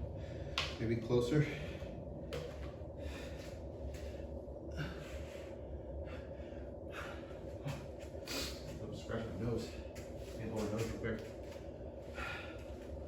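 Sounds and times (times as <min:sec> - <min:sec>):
man breathing heavily: 0:00.0 - 0:00.8, 0:01.4 - 0:08.8, 0:11.6 - 0:13.0
steady low hum: 0:00.0 - 0:13.0.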